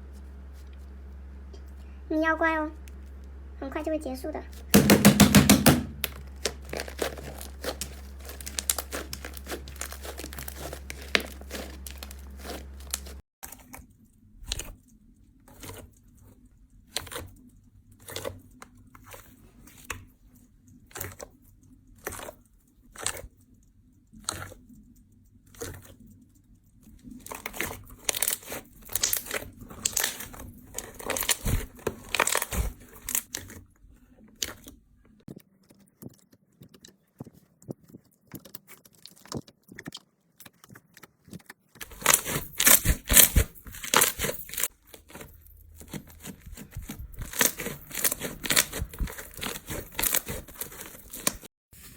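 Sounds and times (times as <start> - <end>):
slime crackling clicks: 5.8 - 13.2.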